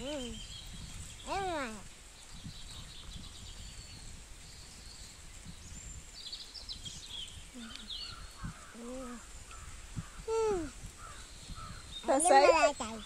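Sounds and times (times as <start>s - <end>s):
small birds chirping: 0.0s - 13.0s
faint low voice murmuring: 7.5s - 9.4s, 10.2s - 10.9s.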